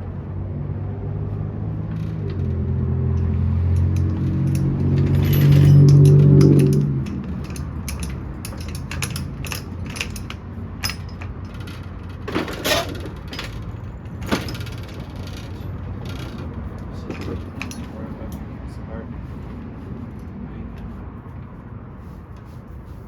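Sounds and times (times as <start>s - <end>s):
metal clanks: 2.0s - 18.4s
hand tools clinking on metal: 3.1s - 16.3s, 16.9s - 18.5s.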